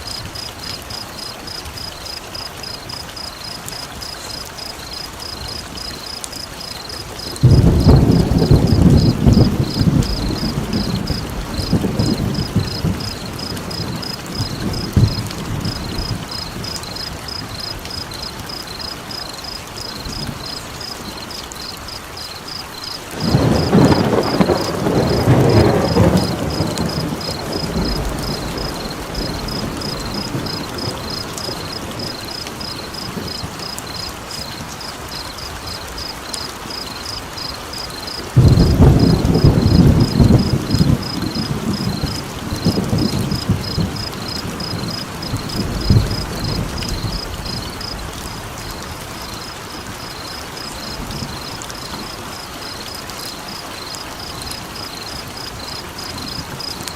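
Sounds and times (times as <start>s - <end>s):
steady rain: 0.0s - 56.9s
thunder rolling: 7.3s - 17.0s, 23.2s - 33.6s, 38.4s - 48.1s.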